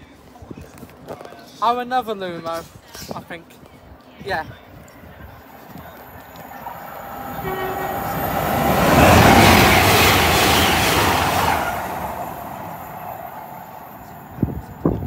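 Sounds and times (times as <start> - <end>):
electric train passing at speed: 5.4 - 15.0.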